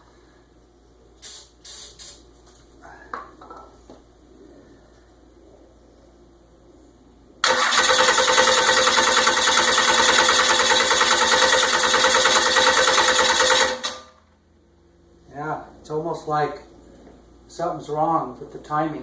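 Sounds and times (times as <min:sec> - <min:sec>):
starter motor cranking diesel engine: 0:07.4 - 0:14.1.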